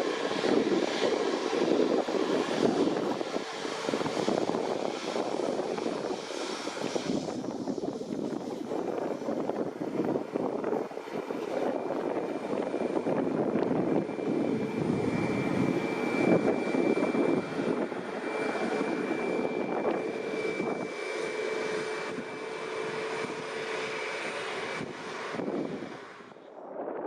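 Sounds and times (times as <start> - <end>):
high steady whine: 0.0 - 27.0
jet engine rush: 0.0 - 27.0.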